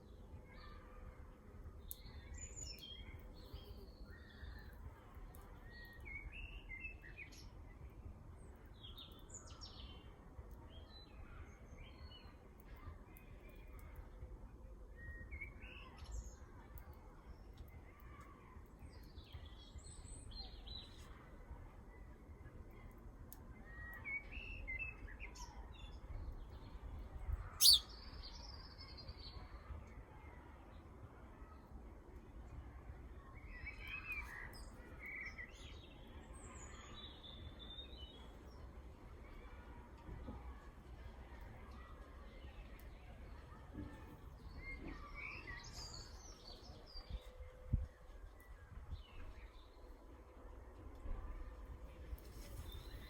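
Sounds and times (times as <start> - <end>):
birds chirping and singing: 27.6 - 27.8.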